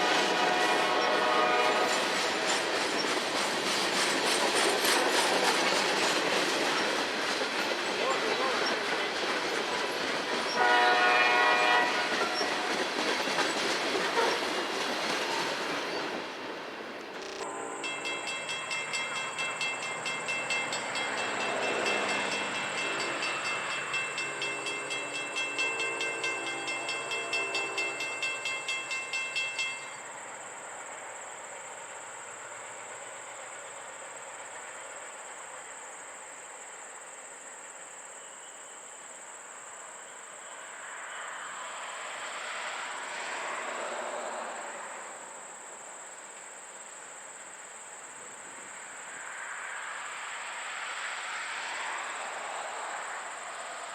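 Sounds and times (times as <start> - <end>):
train horn blast: 0.0 - 2.6, 10.5 - 12.8, 14.1 - 14.5, 17.4 - 18.4, 21.2 - 28.7
diesel train running: 0.0 - 31.0.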